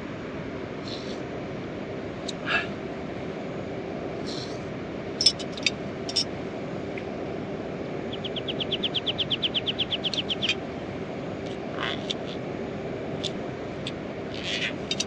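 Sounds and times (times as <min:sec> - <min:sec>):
low steady hum: 0:00.0 - 0:15.0
rapid high chirping trill: 0:08.1 - 0:10.6.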